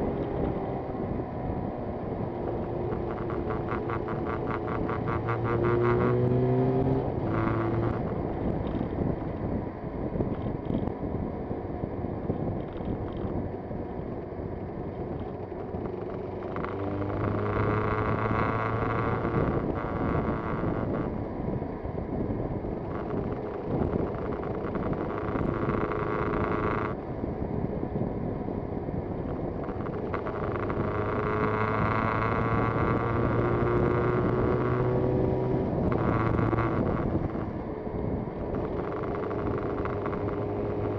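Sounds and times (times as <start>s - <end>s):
motorcycle engine revving: 0.0s - 9.4s, 15.0s - 21.3s, 22.7s - 27.0s, 28.5s - 40.9s
wind noise on microphone: 0.0s - 40.9s.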